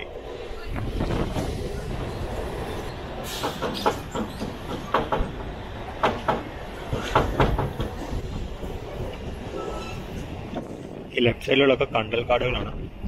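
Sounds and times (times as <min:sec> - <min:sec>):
electric train rumbling: 0:00.0 - 0:13.0
wheels clicking over rail joints: 0:03.2 - 0:09.8.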